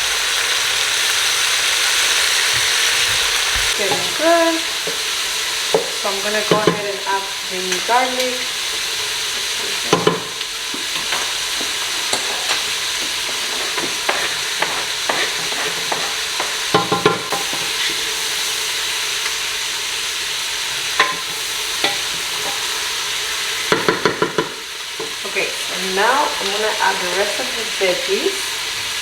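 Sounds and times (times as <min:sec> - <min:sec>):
food sizzling in a pot: 0:00.0 - 0:29.0
utensil scraping a pot: 0:07.6 - 0:18.1.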